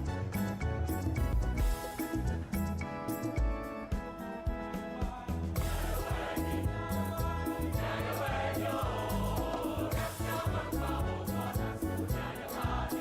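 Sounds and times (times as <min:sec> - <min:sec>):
choral gospel singing over beat: 0:03.9 - 0:13.0.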